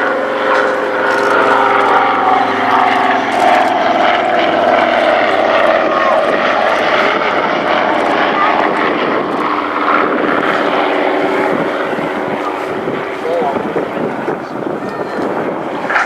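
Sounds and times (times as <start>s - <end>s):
propeller planes droning past: 0.0s - 16.0s.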